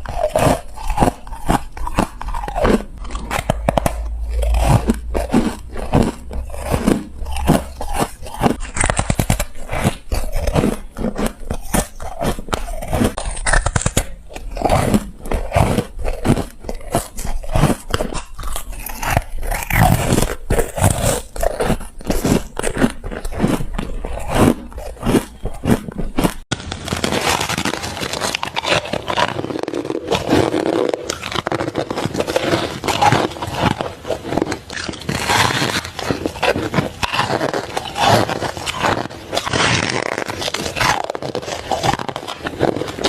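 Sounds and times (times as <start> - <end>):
biting into ice crunches: 0.0 - 43.0.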